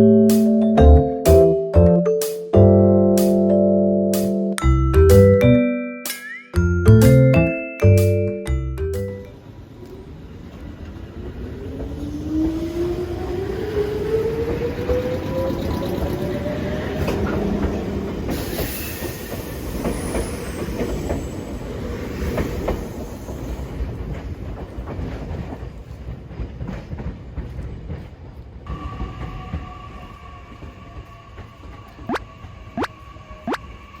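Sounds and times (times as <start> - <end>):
train rumbling on rails: 9.2 - 34.0
wheels clicking over rail joints: 22.2 - 29.6.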